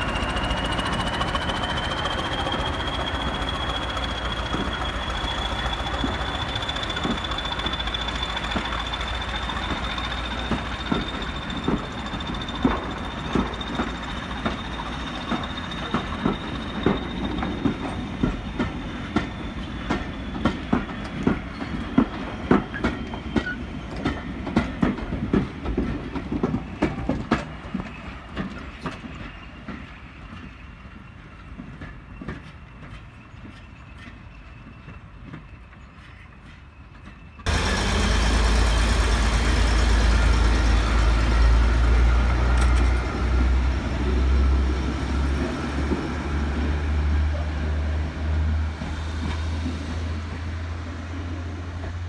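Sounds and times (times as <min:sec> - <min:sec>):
diesel train engine drone: 0:00.0 - 0:52.0
train wheels clicking over joints: 0:00.0 - 0:52.0.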